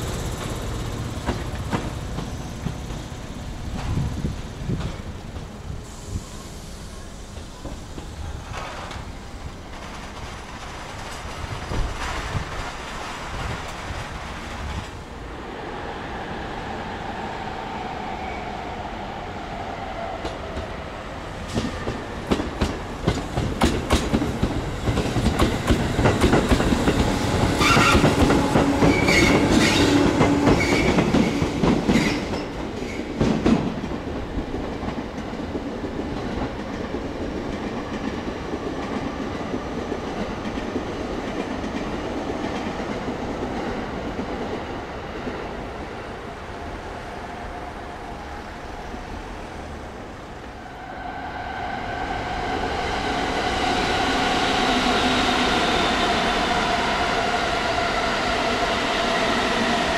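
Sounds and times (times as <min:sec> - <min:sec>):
train wheels clicking over rail joints: 0:00.0 - 0:06.5, 0:07.2 - 0:15.0, 0:21.4 - 0:44.6
high wheel squeal: 0:27.6 - 0:31.0.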